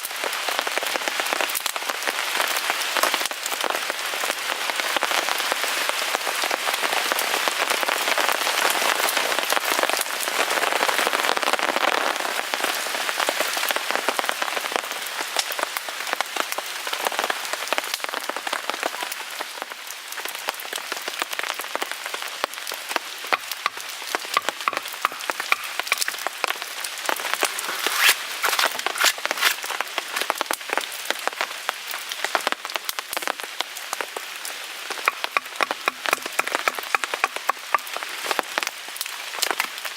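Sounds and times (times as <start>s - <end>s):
rain pattering on a tarp: 0.0s - 39.9s
wood fire crackling: 22.2s - 39.9s.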